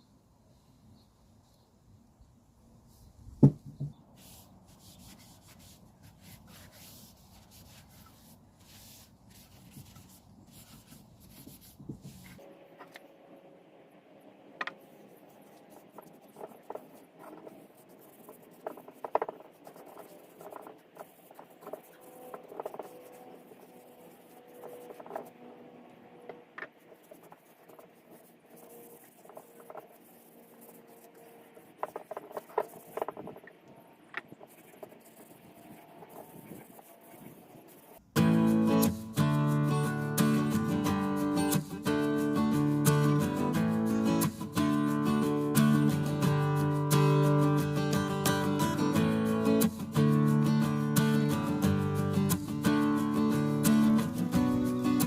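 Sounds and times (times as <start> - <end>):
light taps and knocks on wood: 3.4 - 4.0
rubbing and scraping on wood: 3.4 - 13.0, 14.6 - 25.6, 26.3 - 55.0.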